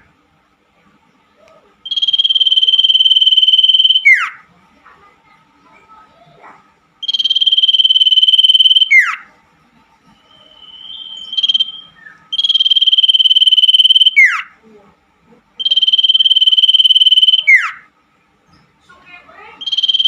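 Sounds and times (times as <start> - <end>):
bird calling with buzzy trill: 1.8 - 4.4, 7.0 - 9.3, 10.2 - 14.6, 15.6 - 17.9, 19.6 - 20.0.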